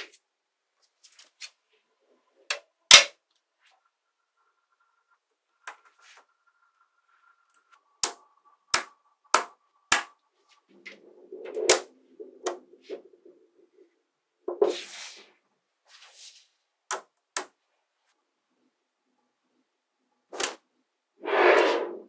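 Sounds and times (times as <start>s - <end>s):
magnetic balls snapping together: 20.4s - 20.6s.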